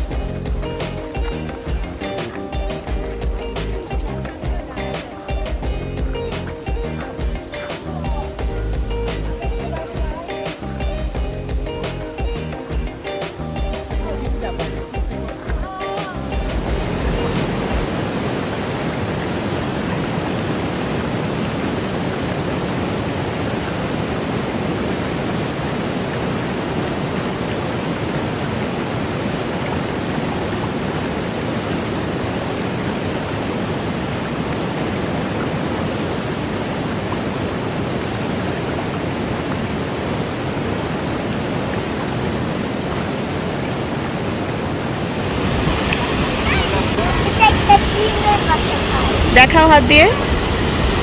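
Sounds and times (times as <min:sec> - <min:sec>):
waterfall roaring: 0:15.4 - 0:51.0.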